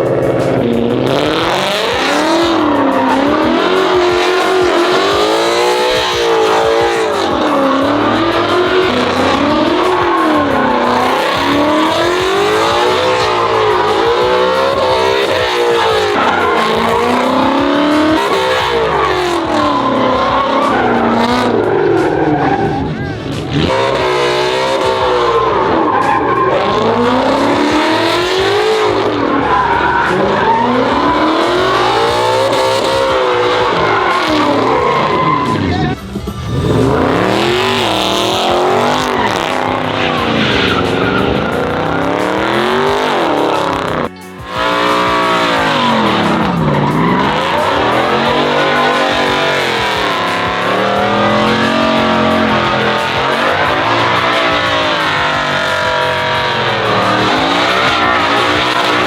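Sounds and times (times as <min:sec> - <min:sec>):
tires screeching: 0:00.0 - 0:59.0
truck engine revving: 0:00.0 - 0:59.0.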